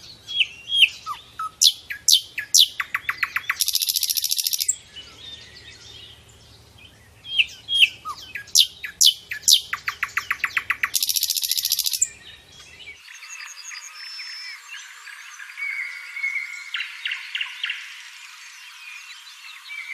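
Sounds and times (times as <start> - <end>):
softer bird chirping: 0.0 - 14.6
songbird singing: 0.0 - 19.9.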